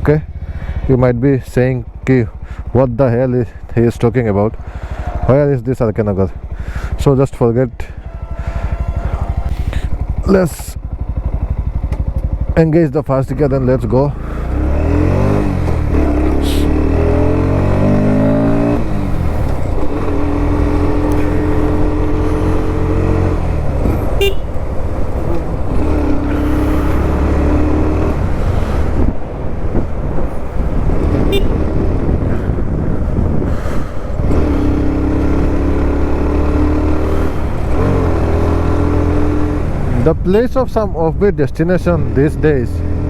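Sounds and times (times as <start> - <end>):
wind and road noise: 0.0 - 43.0
motorcycle engine pulling away: 7.8 - 40.2.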